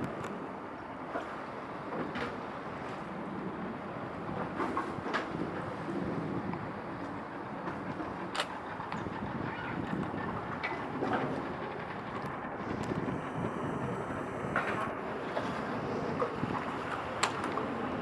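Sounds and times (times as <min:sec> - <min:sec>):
wind on microphone: 0:09.0 - 0:17.2.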